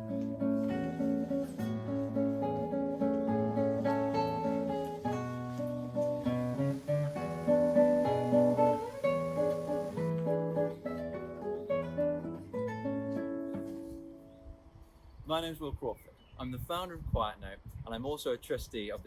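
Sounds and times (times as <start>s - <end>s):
acoustic guitar playing: 0.0s - 14.7s.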